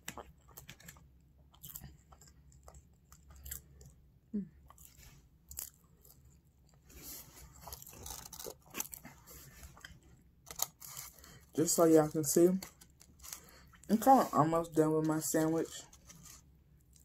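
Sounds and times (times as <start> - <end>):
chewing and biting food: 0.0 - 11.6.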